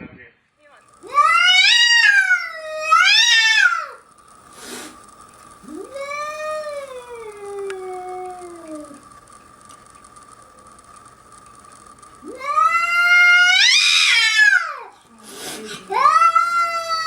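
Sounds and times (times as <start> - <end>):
cat yowling: 1.0 - 4.0, 5.7 - 9.0, 12.2 - 17.0
breathy burst: 15.2 - 15.9.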